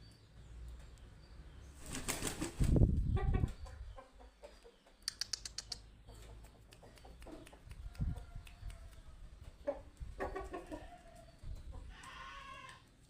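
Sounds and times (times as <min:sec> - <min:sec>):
rooster flapping wings: 0:01.8 - 0:03.0
sharp clicks: 0:05.0 - 0:05.9.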